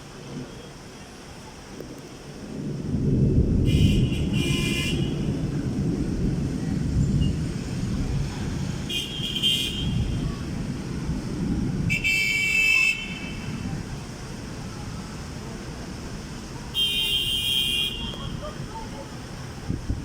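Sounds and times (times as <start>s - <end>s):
street traffic rumble: 0.0s - 20.0s
car horns honking: 8.9s - 10.1s, 16.8s - 18.5s.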